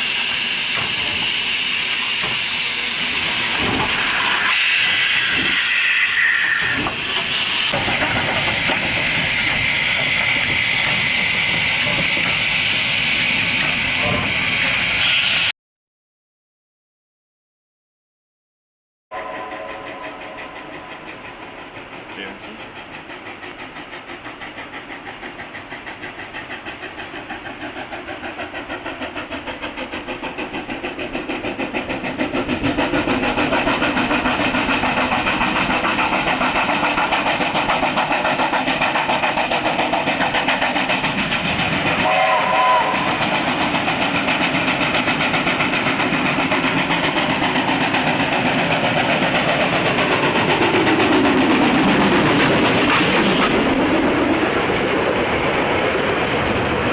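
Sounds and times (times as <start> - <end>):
steam train running past: 0.0 - 15.5, 19.1 - 56.9
train whistle toot: 19.1 - 20.4, 42.0 - 43.2.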